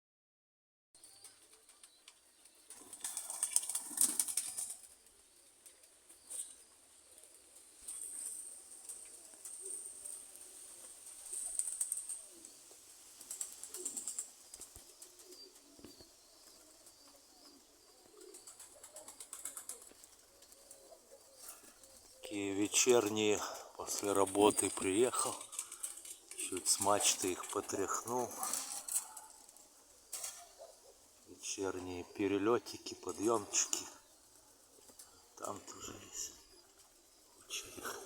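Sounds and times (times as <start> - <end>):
wings flapping: 1.2 - 31.1
pigeons cooing: 2.7 - 5.0, 5.6 - 38.0
rustling: 19.3 - 30.6.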